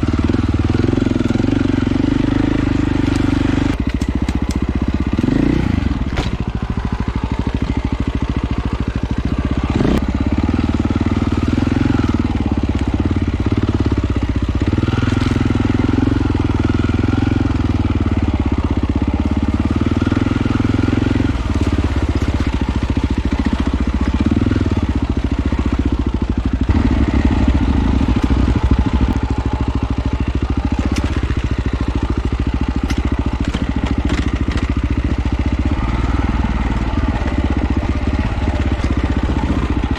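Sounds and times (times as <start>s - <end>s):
off-road motorcycle engine: 0.0s - 39.9s.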